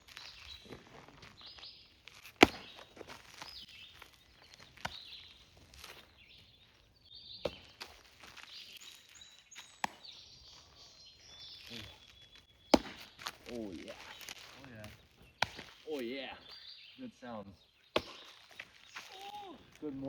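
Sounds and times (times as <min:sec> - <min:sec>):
birds chirping: 0:00.0 - 0:20.0
baseball popping into leather glove: 0:02.1 - 0:03.6, 0:07.4 - 0:08.5, 0:09.6 - 0:10.7, 0:11.7 - 0:16.0, 0:17.9 - 0:19.8.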